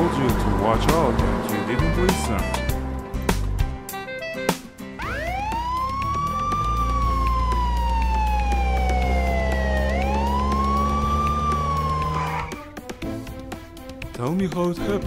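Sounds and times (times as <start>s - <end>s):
police siren wailing: 5.0s - 12.7s.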